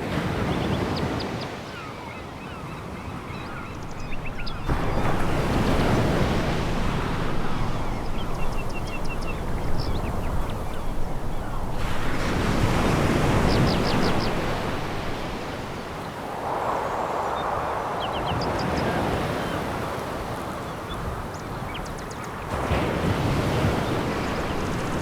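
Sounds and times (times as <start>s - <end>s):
birds chirping: 0.3s - 25.0s
sea waves breaking on pebbles: 3.5s - 18.7s, 22.5s - 25.0s.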